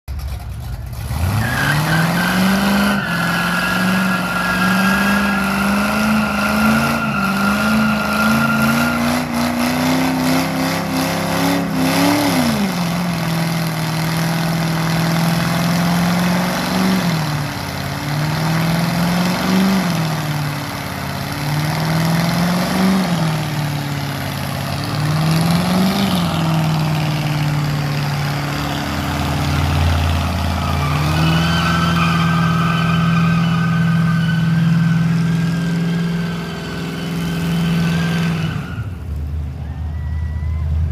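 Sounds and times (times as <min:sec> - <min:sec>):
truck engine revving: 0:00.4 - 0:39.0
tyres squealing: 0:01.3 - 0:10.2, 0:27.9 - 0:39.0.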